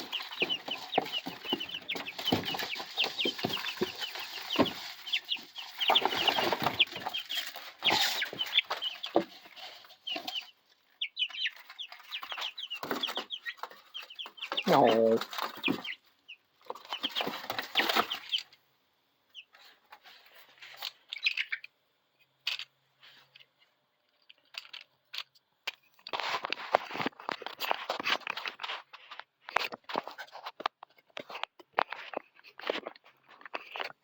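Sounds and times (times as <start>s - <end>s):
chicks peeping: 0.0s - 18.6s, 19.2s - 22.6s
chicks scratching in bedding: 0.0s - 18.6s, 19.3s - 21.7s, 25.9s - 34.0s.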